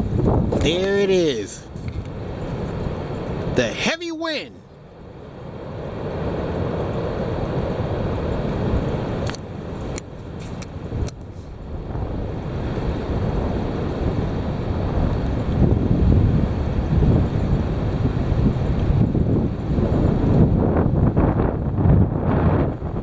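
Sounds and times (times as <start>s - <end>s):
wind buffeting microphone: 0.0s - 3.6s, 4.9s - 23.0s.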